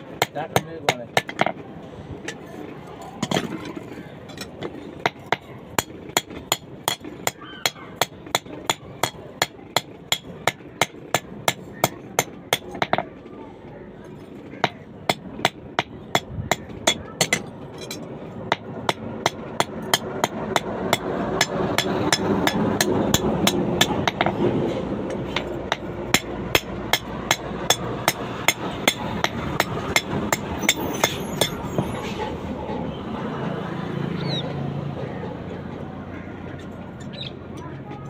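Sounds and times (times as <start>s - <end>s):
constant noisy background: 0.0s - 38.0s
hammer striking steel on anvil: 14.6s - 24.4s, 25.0s - 31.8s.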